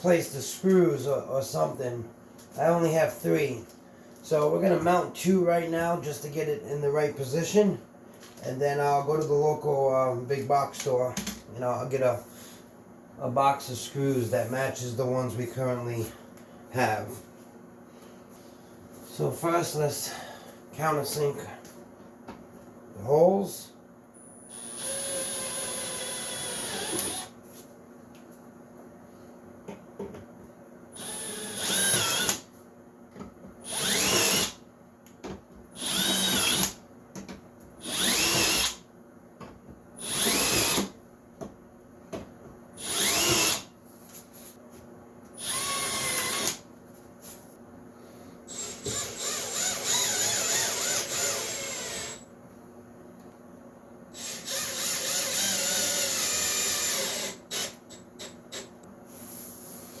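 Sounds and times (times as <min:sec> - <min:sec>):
cordless drill running: 0:24.5 - 0:27.3, 0:31.0 - 0:32.4, 0:33.6 - 0:34.6, 0:35.8 - 0:36.8, 0:37.8 - 0:38.8, 0:40.0 - 0:40.9, 0:42.8 - 0:43.7, 0:45.4 - 0:46.6, 0:48.5 - 0:52.2, 0:54.2 - 0:57.8.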